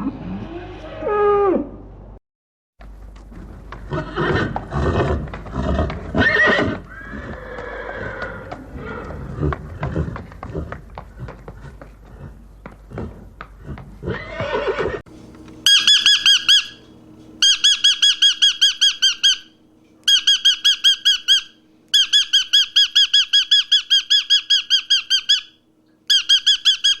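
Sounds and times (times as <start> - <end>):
lower rising animal call: 0.0 - 1.9, 15.6 - 19.5
animal high chirps: 15.6 - 16.8, 17.4 - 27.0.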